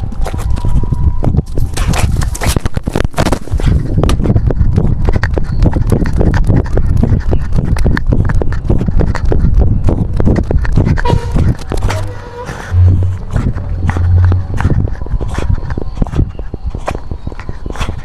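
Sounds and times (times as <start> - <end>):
low rumble: 3.8 - 17.7.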